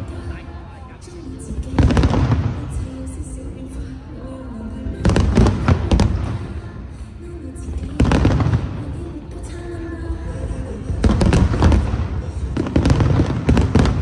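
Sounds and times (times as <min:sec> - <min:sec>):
fireworks booming with crackle: 0:01.7 - 0:02.9, 0:05.0 - 0:06.6, 0:07.8 - 0:09.0, 0:10.9 - 0:14.0.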